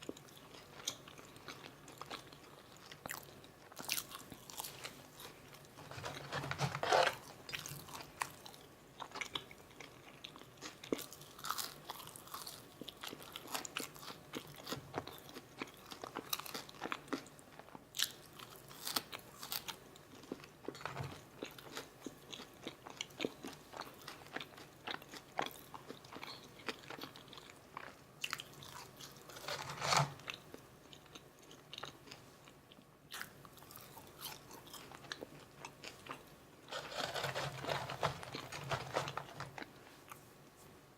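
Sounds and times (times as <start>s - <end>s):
crunchy chewing: 0.0s - 40.2s.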